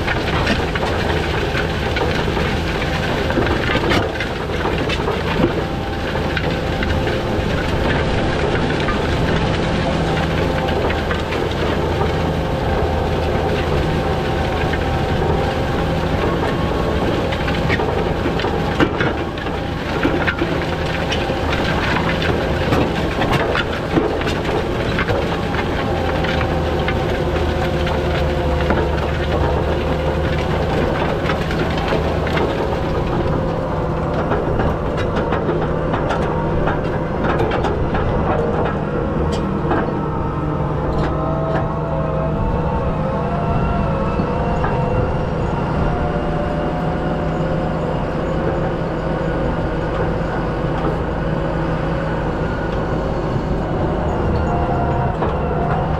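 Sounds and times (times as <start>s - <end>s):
rattles and clanks: 0.0s - 43.0s
tractor diesel engine running: 0.0s - 55.9s.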